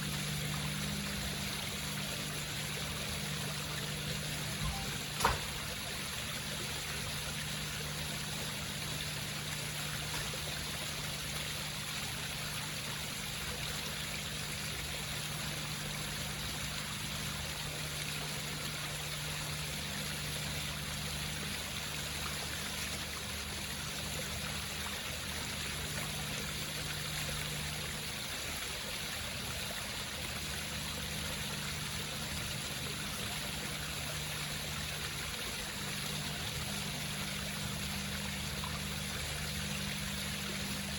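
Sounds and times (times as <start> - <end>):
low hum: 0.0 - 10.4
water trickling over rocks: 0.0 - 40.9.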